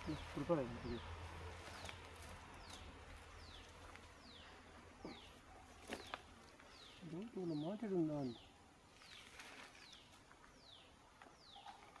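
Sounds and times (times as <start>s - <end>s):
dry leaves clicking: 0.0s - 4.2s, 5.7s - 7.5s, 8.9s - 10.6s.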